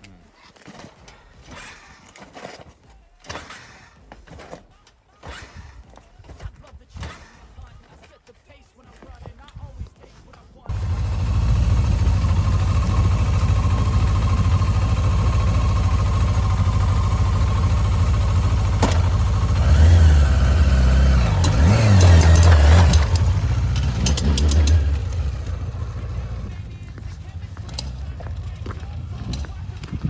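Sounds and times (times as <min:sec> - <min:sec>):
motorcycle engine idling and revving: 0:10.7 - 0:30.0.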